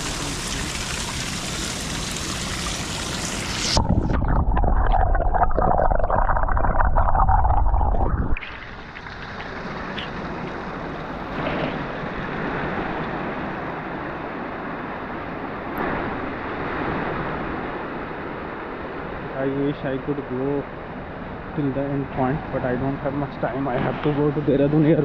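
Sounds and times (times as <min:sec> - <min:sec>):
mountain stream rushing: 0:00.0 - 0:04.4.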